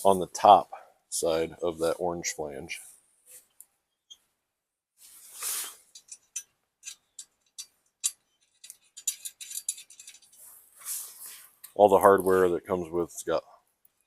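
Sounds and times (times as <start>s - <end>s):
soft scrape: 5.0s - 5.9s, 10.3s - 11.6s
metal hardware clinking: 5.9s - 10.4s.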